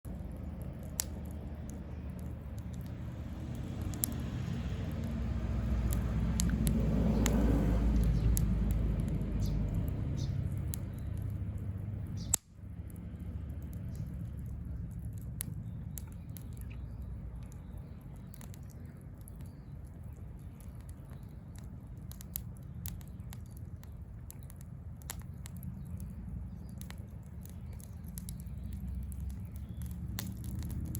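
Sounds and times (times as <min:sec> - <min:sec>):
bonfire crackling: 0:00.0 - 0:30.9.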